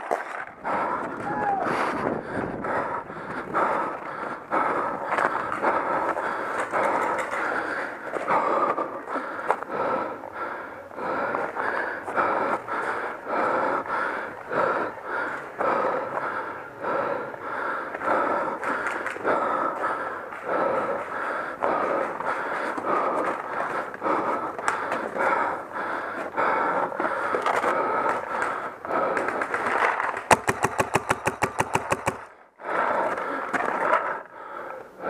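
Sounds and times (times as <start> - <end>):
breathing: 1.8 - 30.2, 31.2 - 35.0
paintball marker firing rapidly: 29.0 - 32.4.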